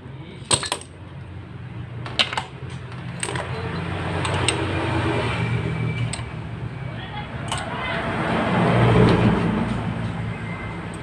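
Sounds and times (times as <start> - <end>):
metallic clicks of tools: 2.2 - 4.8, 7.4 - 7.7.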